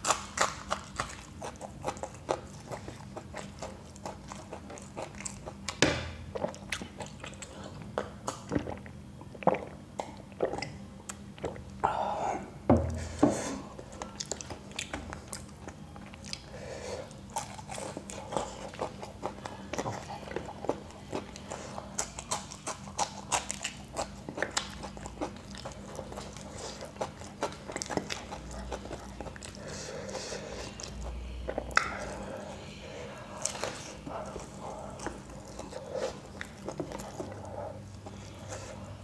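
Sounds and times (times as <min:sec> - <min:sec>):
crisp crunching chewing: 0:13.8 - 0:29.8, 0:33.2 - 0:38.9.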